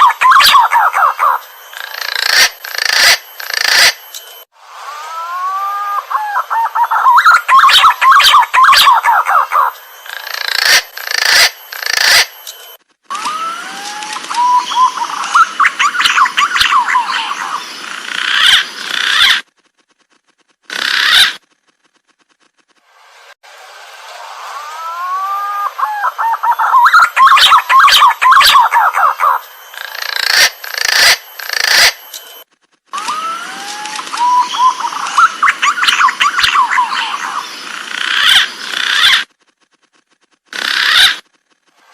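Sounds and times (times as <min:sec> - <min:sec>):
pigeon calling with whistled notes: 0:00.0 - 0:04.0, 0:05.1 - 0:12.3, 0:13.1 - 0:17.7, 0:24.8 - 0:32.0, 0:33.0 - 0:37.5
harsh rasping bird bursts: 0:00.0 - 0:04.1, 0:05.0 - 0:12.4, 0:13.1 - 0:22.0, 0:24.5 - 0:32.1, 0:33.0 - 0:39.4, 0:40.5 - 0:41.6
rustling noise: 0:12.6 - 0:14.4, 0:18.7 - 0:23.4, 0:32.2 - 0:33.0, 0:38.5 - 0:41.9.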